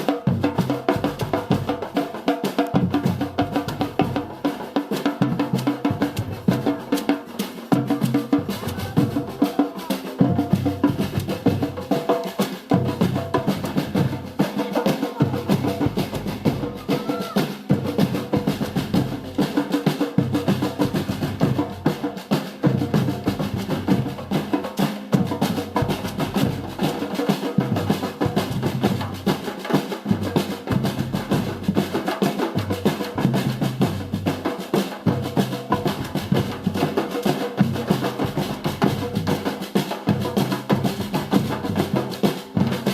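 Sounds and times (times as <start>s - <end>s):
samba drum group playing: 0.0s - 42.9s
snare drums: 0.0s - 42.9s
bass drums: 0.3s - 2.0s, 2.8s - 4.5s, 5.2s - 7.1s, 7.7s - 14.4s, 15.1s - 19.6s, 20.2s - 24.6s, 25.2s - 32.0s, 32.6s - 34.5s, 35.1s - 42.9s.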